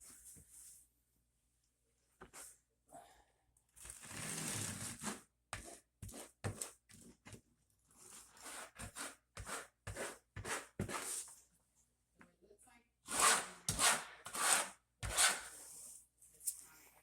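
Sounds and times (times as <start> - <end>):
adhesive scraping on floor: 3.8 - 5.8.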